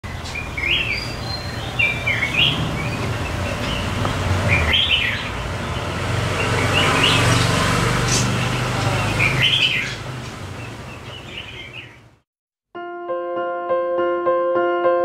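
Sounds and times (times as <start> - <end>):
birds chirping: 0.0 - 12.2
steady low rumble: 1.9 - 5.8.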